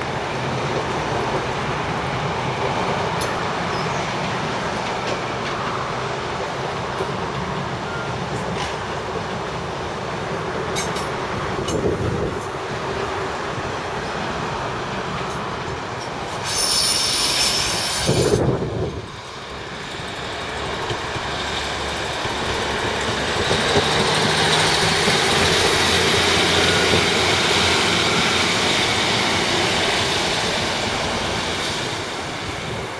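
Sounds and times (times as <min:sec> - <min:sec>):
diesel train passing: 0:00.0 - 0:32.9
train wheels squealing: 0:03.2 - 0:04.2, 0:07.8 - 0:08.8, 0:16.3 - 0:18.6, 0:21.4 - 0:32.8.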